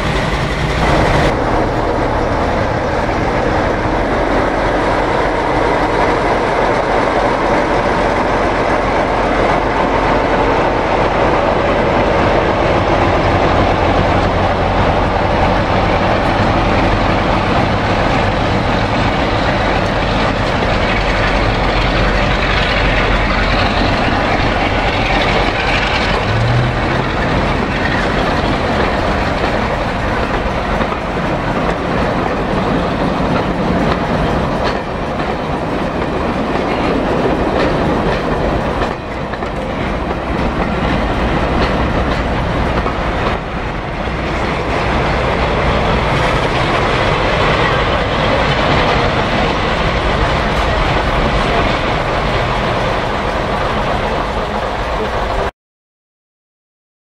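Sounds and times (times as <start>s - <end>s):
train wheels clacking over rail joints: 0.0s - 1.4s, 11.9s - 55.4s.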